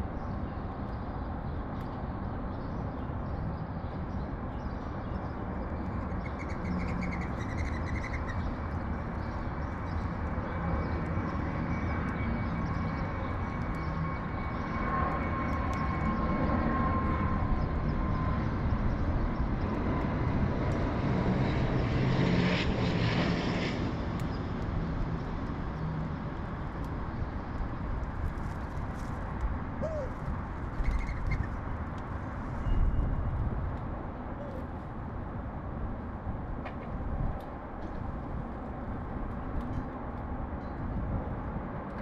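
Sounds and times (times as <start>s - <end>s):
aircraft engine drone: 5.5s - 28.6s.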